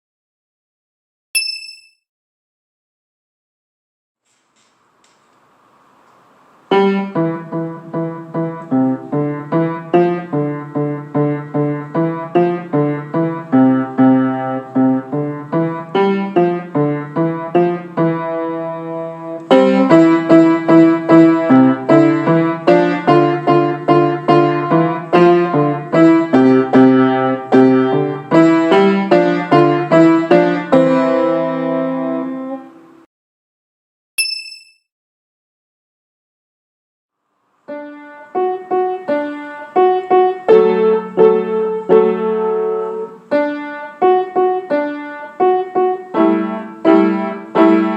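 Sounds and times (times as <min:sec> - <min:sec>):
piano playing a simple tune: 0:06.7 - 0:33.1, 0:37.6 - 0:47.9.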